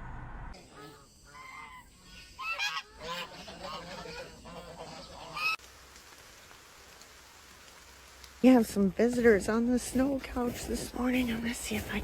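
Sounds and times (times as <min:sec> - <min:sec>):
goose honking: 0:00.7 - 0:05.6.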